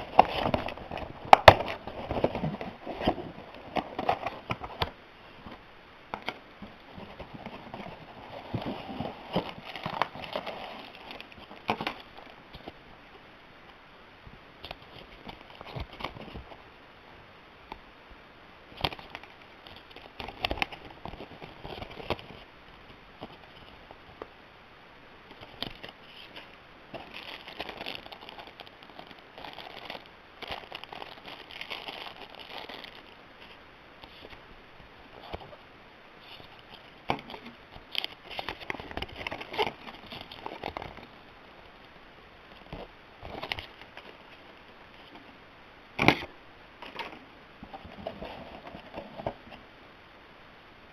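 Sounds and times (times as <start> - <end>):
packaging rustling: 0.0 - 5.0, 6.2 - 12.8, 18.7 - 24.0, 25.3 - 34.4, 36.2 - 41.8, 42.5 - 45.2.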